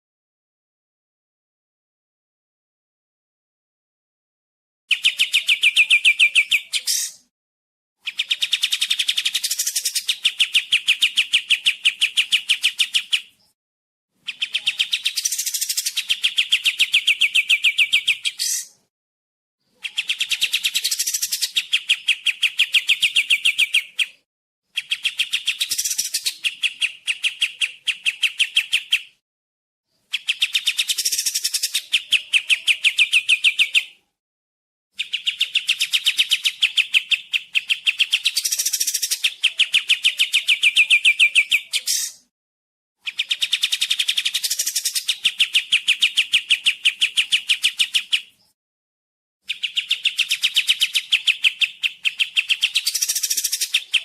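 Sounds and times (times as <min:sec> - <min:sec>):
songbird chattering: 0:14.3 - 0:18.8, 0:19.7 - 0:24.2, 0:35.0 - 0:42.3, 0:49.4 - 0:54.0.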